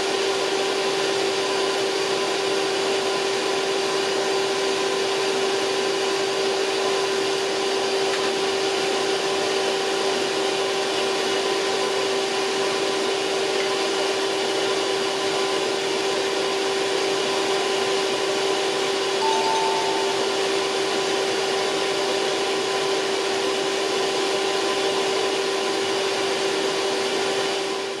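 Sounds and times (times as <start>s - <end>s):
faint higher tone: 19.2s - 20.8s.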